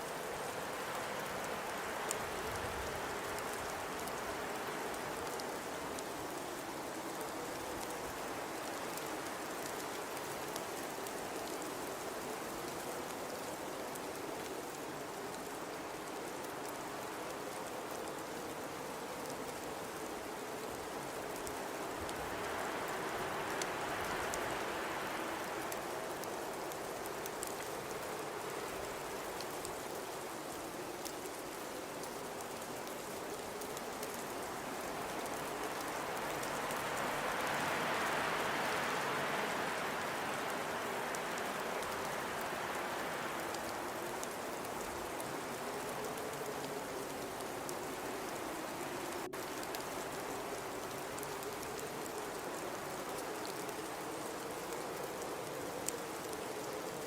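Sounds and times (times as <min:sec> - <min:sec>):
blizzard wind blowing: 0:18.8 - 0:52.0.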